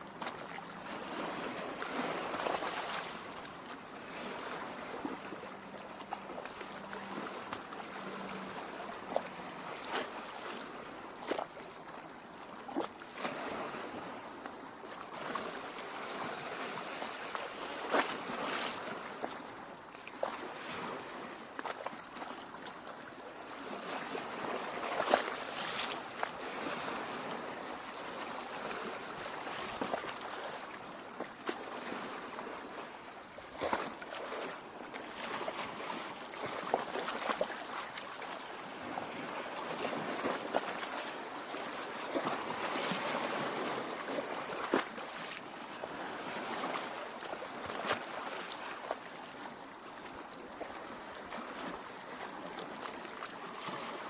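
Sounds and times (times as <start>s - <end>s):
lake water lapping against rocks: 0.0s - 54.0s
small splashes and gurgles: 33.3s - 41.0s.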